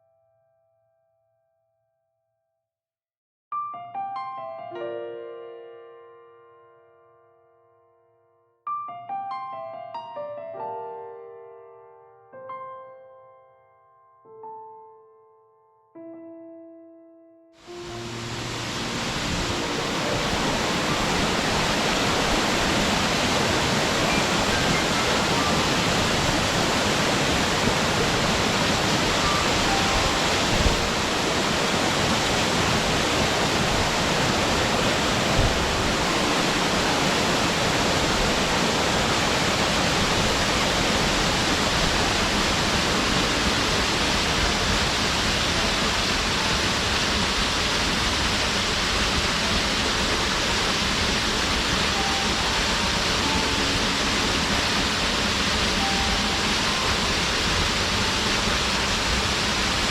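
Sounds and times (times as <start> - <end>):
waterfall rushing: 17.6 - 59.9.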